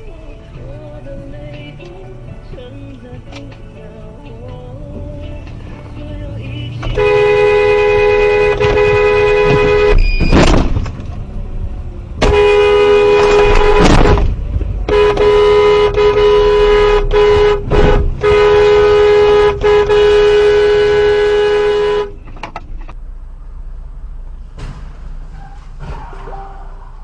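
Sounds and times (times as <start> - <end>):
two-tone vehicle horn blasts: 6.7 - 10.3, 12.2 - 14.2, 14.8 - 22.2.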